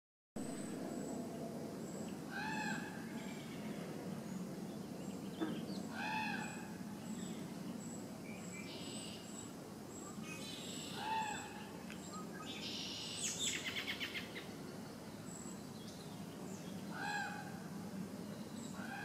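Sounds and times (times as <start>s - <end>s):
outdoor background noise: 0.4s - 19.0s.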